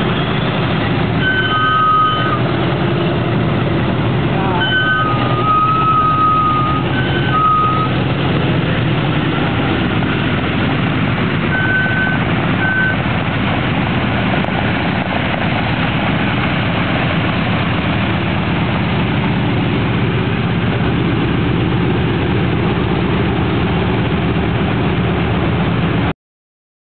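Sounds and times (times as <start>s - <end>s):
aircraft engines droning: 0.0s - 26.1s
short high beeps: 1.2s - 2.5s, 4.6s - 8.0s, 11.5s - 13.0s.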